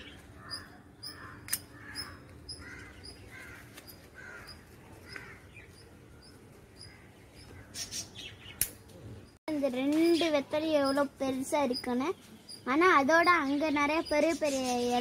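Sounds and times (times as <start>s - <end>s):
bird calling: 0.0s - 8.7s
sharp click: 1.4s - 1.7s, 8.6s - 9.0s.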